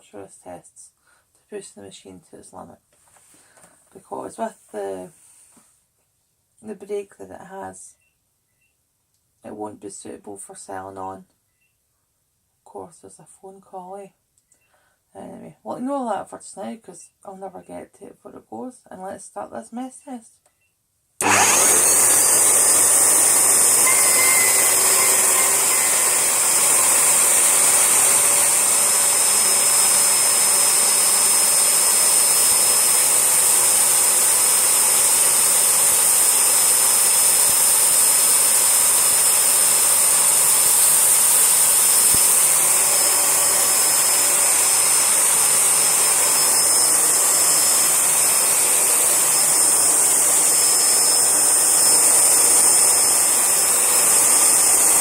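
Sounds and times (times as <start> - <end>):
vacuum cleaner running: 21.2 - 55.0.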